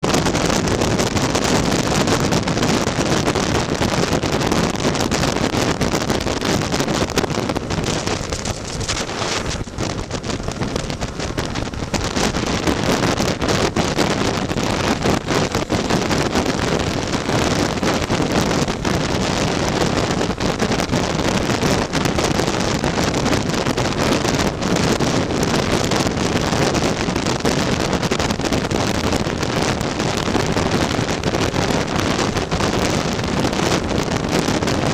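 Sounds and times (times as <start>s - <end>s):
scooter engine at speed: 0.0s - 34.9s
wind noise on microphone: 0.0s - 34.9s.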